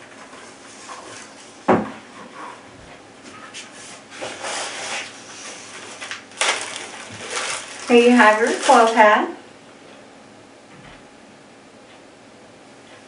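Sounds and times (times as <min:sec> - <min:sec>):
packaging rubbing and rustling: 0:04.1 - 0:09.2.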